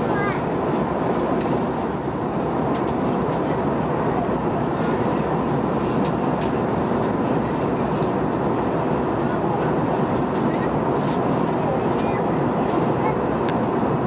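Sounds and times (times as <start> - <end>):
airplane cabin engine drone: 0.0 - 14.0.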